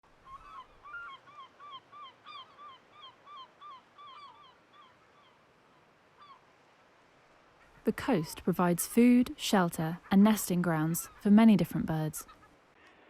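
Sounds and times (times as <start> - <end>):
seabirds calling: 0.1 - 6.5, 7.6 - 12.6.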